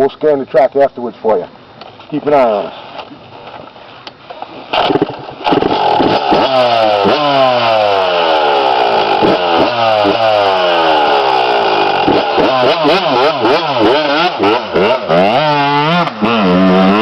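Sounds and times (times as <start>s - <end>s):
dirt bike engine revving: 4.7s - 17.0s.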